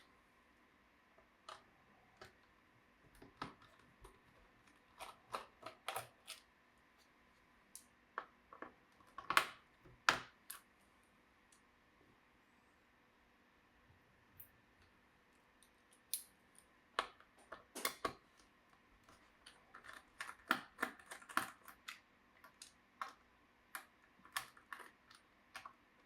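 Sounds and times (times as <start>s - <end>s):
clicks and taps of plastic parts: 3.1s - 4.3s, 7.8s - 10.6s, 17.0s - 18.3s, 19.1s - 23.2s.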